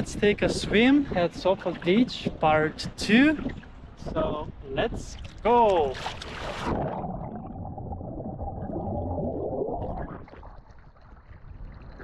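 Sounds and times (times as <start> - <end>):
water splashing: 5.1 - 12.0
underwater sloshing and gurgling: 5.2 - 12.0.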